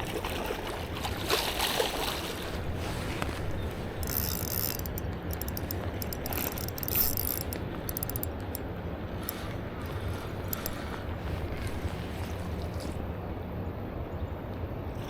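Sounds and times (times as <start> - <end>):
river water rumble: 0.0 - 14.9
wind: 0.0 - 15.0
fishing reel clicking: 2.6 - 13.0.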